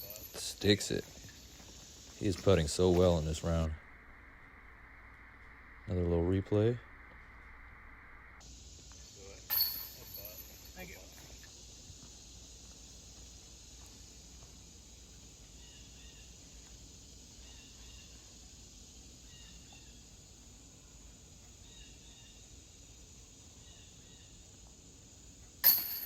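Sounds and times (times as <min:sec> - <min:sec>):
high-pitched insect drone: 0:00.0 - 0:07.2.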